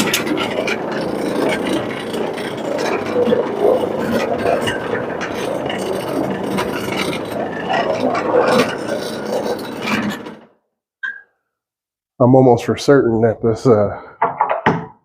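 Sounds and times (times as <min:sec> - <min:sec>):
carpet cleaning machine running: 0:00.0 - 0:10.4.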